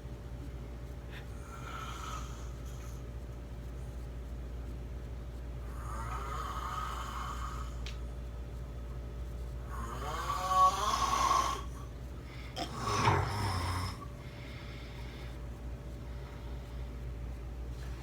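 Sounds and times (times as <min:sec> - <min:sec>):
person snoring: 0:05.7 - 0:07.8, 0:09.7 - 0:11.8, 0:12.5 - 0:14.2.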